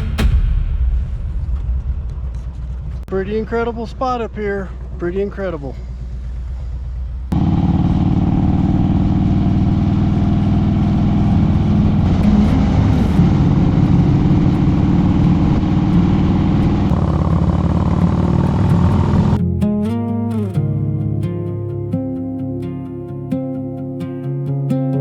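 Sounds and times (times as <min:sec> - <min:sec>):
low hum: 0:00.0 - 0:19.4
motorcycle engine running: 0:02.2 - 0:19.4
wind noise: 0:09.9 - 0:19.4.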